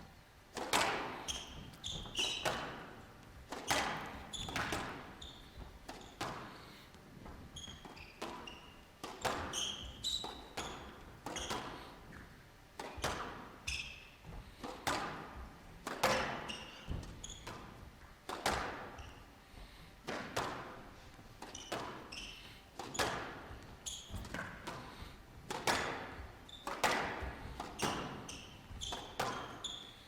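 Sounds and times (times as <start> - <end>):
squash ball strikes: 0.6 - 1.2, 2.3 - 5.2, 12.8 - 13.4, 14.8 - 17.6, 18.3 - 18.9, 20.1 - 20.8, 25.5 - 28.3
short high shoe squeaks: 1.2 - 2.9, 3.7 - 6.3, 7.5 - 11.9, 13.7 - 14.2, 16.4 - 17.7, 21.4 - 23.1, 23.8 - 24.5, 26.4 - 26.9, 27.8 - 30.0.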